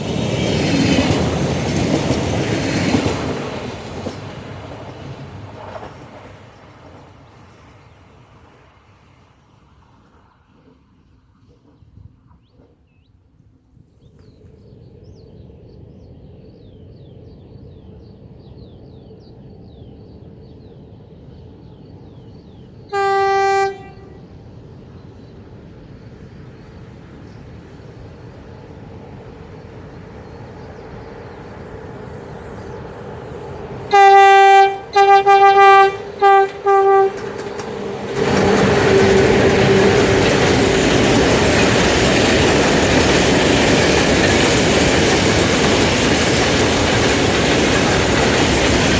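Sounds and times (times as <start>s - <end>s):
train wheels on rails: 0.0s - 13.2s, 14.0s - 48.9s
train horn blasts: 22.9s - 24.2s, 33.9s - 37.3s.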